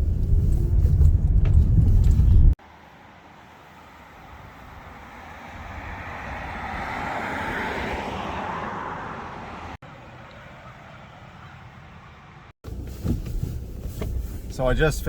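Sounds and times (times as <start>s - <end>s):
vehicle passing by: 2.6s - 12.5s.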